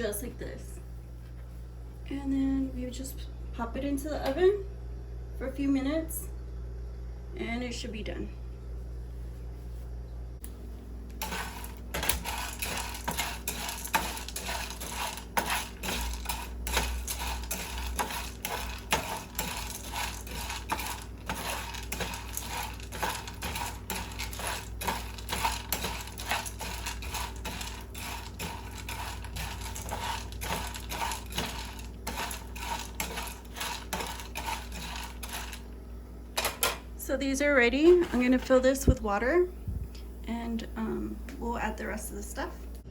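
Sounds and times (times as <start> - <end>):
dry pasta rattling in a pan: 11.2 - 35.7.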